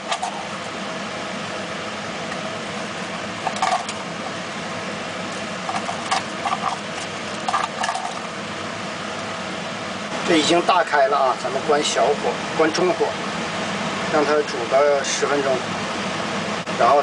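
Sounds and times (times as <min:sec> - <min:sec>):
pot boiling with rushing noise: 0:00.0 - 0:17.0
utensil clatters: 0:03.4 - 0:04.0, 0:05.6 - 0:08.3.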